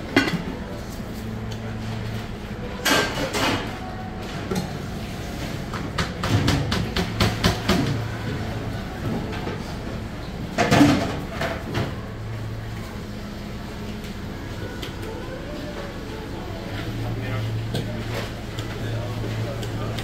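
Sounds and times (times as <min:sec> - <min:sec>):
low equipment hum: 0:00.0 - 0:20.0
faint voices: 0:07.9 - 0:20.0.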